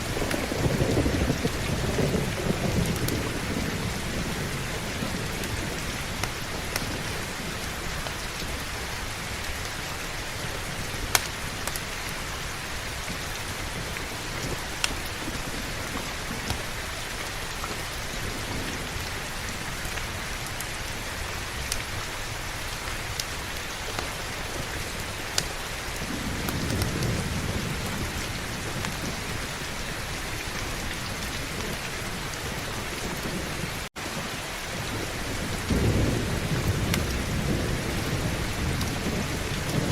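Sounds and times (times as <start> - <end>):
distant thunder rumbling: 0.0 - 9.8, 23.4 - 39.9
heavy rain: 0.0 - 39.9.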